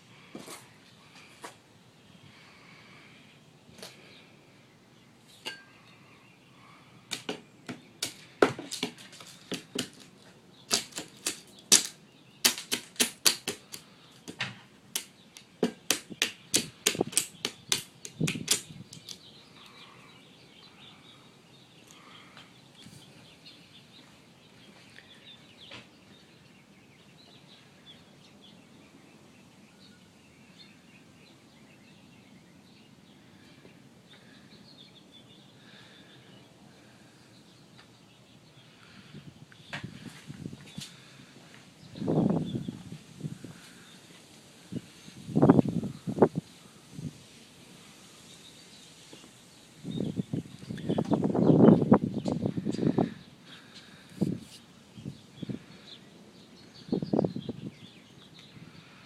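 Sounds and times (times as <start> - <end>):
hammering nails into wood: 7.1 - 10.1, 10.7 - 19.2.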